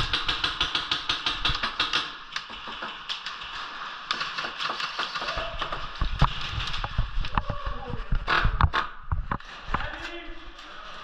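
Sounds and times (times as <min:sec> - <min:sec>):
airsoft gun clicking shots: 0:00.0 - 0:03.2.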